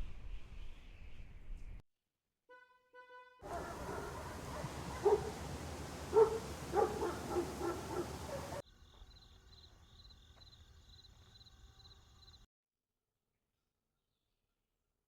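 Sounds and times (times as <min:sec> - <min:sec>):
barking animal calls: 0:03.4 - 0:08.6
steady background hiss: 0:03.5 - 0:08.6.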